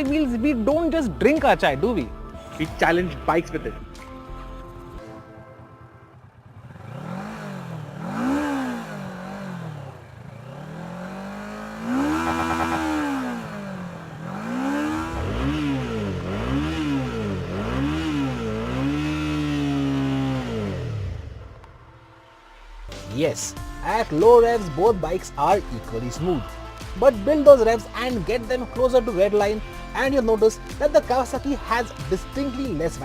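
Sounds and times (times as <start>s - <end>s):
motorcycle engine revving: 3.9s - 28.6s.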